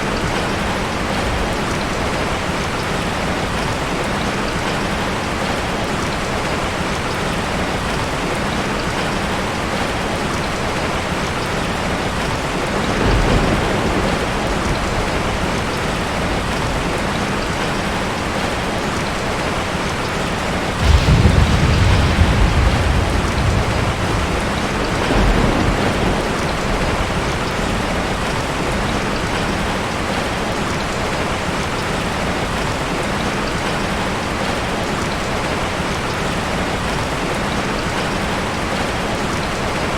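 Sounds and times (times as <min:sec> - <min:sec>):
steady rain falling: 0:00.0 - 0:39.9
thunder rumbling: 0:10.8 - 0:18.5, 0:20.6 - 0:30.2.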